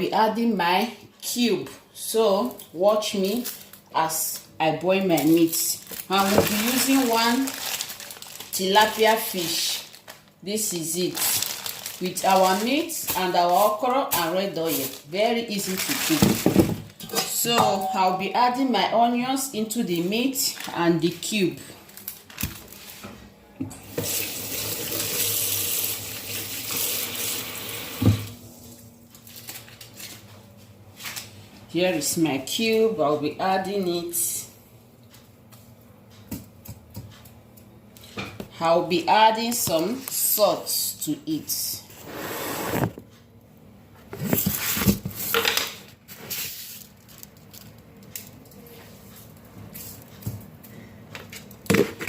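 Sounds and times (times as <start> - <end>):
kitchen tap running: 23.8 - 28.4.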